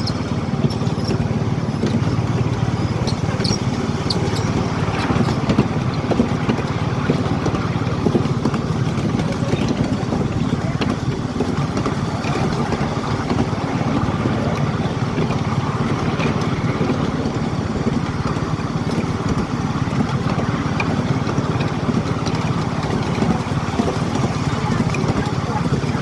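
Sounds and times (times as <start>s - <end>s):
miniature train engine running: 0.0s - 26.0s.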